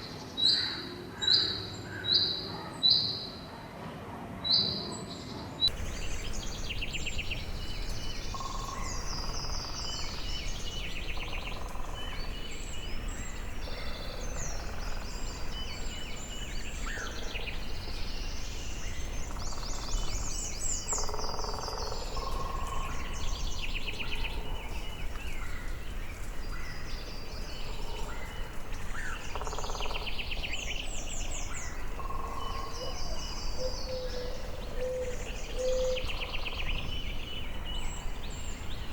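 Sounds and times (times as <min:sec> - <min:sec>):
steady low rumble: 0:05.7 - 0:20.6
birds trilling and chirping: 0:05.7 - 0:38.9.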